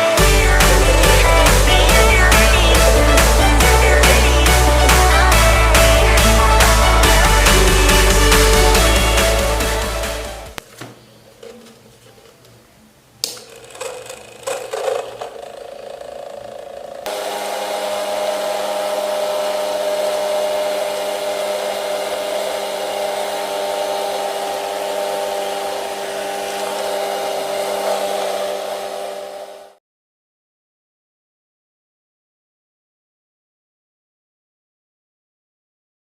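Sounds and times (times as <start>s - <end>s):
handling knocks and clicks: 10.6s - 12.6s, 13.2s - 16.2s
small motor spinning fan: 13.4s - 29.8s.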